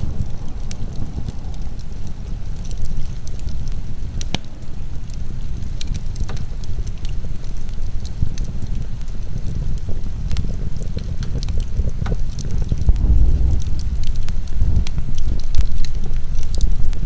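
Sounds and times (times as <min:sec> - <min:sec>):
heavy rain: 0:00.0 - 0:17.0
wood fire crackling: 0:00.0 - 0:17.0.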